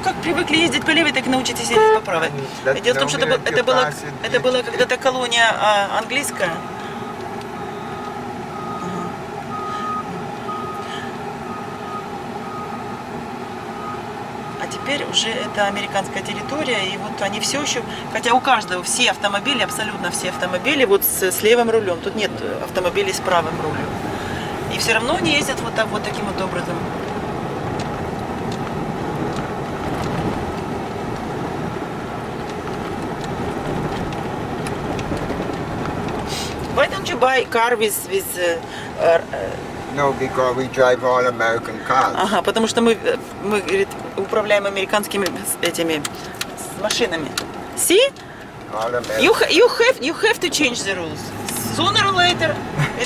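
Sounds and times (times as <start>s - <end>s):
bus engine and road noise: 0.0s - 53.0s
reversing alarm beeping: 6.2s - 13.1s, 13.7s - 21.1s.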